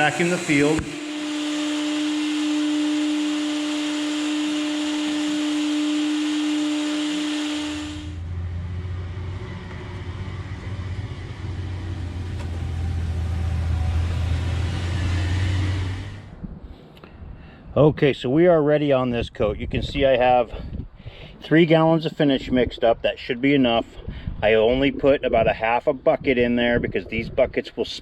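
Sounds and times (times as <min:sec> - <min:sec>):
vacuum cleaner whining: 0:00.0 - 0:08.3, 0:09.3 - 0:16.3
low rumbling hum: 0:00.0 - 0:17.7.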